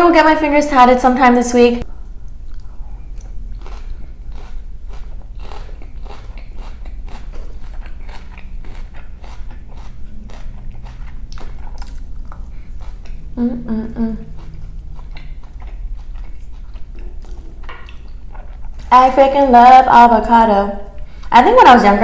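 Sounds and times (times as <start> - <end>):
chewing crisp salad: 2.2 - 13.4, 14.0 - 19.0.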